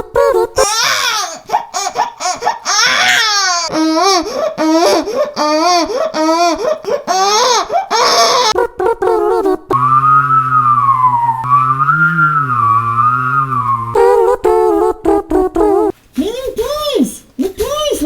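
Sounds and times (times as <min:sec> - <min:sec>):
man imitating baby squeals: 0:00.6 - 0:03.9, 0:04.6 - 0:09.4.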